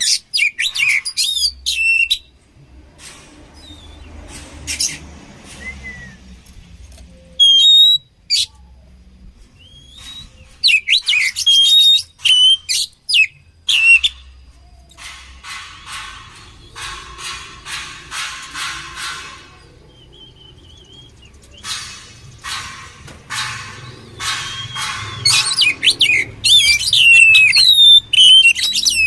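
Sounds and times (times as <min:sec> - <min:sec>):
bird singing rapid whistles: 0:00.0 - 0:02.3, 0:05.6 - 0:06.3, 0:07.1 - 0:08.6, 0:09.6 - 0:14.9, 0:19.6 - 0:22.0, 0:23.8 - 0:29.0.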